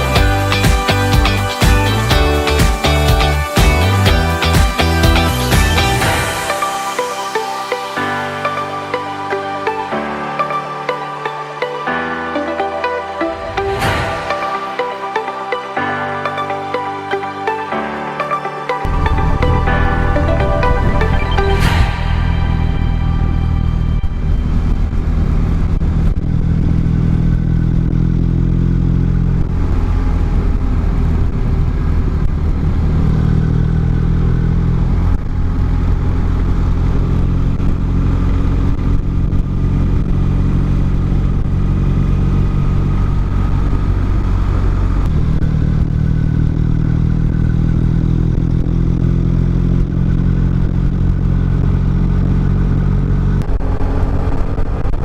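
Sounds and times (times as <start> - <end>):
motorcycle engine running: 23.2 - 55.0.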